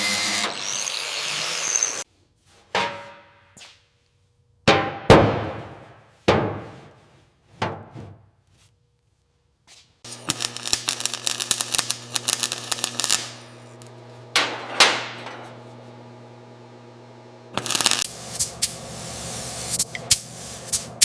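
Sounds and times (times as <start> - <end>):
power tool humming: 0.0 - 2.0, 10.1 - 14.4, 15.5 - 18.1.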